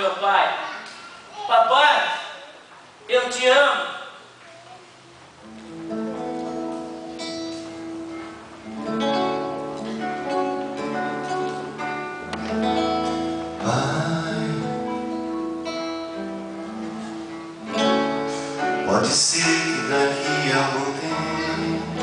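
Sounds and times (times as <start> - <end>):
acoustic guitar chords: 5.3 - 22.0.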